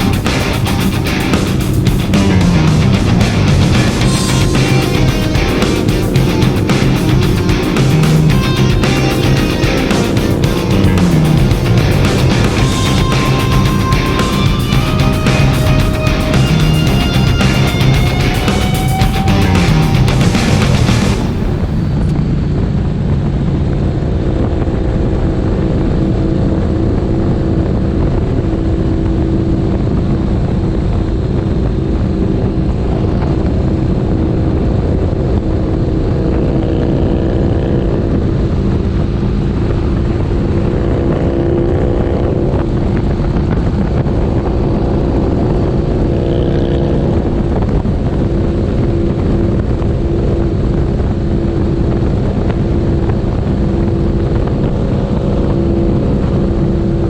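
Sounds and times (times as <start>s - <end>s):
motorcycle engine cruising: 0.0s - 22.1s.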